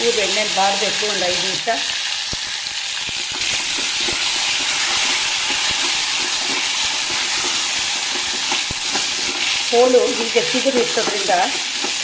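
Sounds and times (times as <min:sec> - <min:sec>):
vegetables sizzling in hot oil: 0:00.0 - 0:12.0
spatula scraping and knocking pot: 0:03.2 - 0:12.0.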